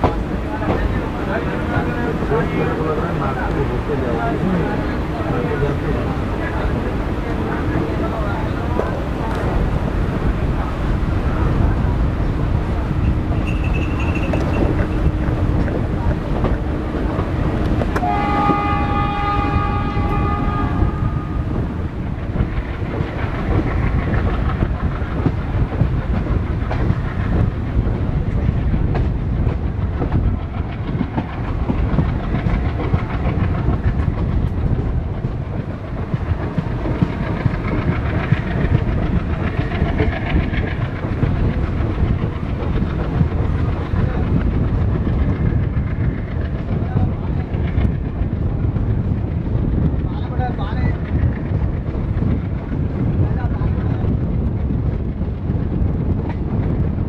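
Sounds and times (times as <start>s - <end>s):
wheels clacking over rail joints: 0.0s - 20.5s, 21.4s - 57.0s
train rumbling: 0.0s - 57.0s
locomotive horn: 17.9s - 21.6s.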